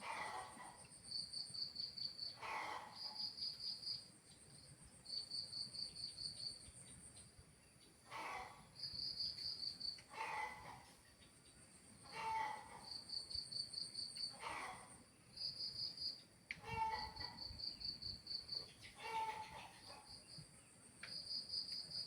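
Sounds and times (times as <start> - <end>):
crickets chirping: 0.8 - 2.4, 3.0 - 7.4, 8.8 - 10.1, 11.4 - 16.4, 17.0 - 18.9, 20.0 - 22.0.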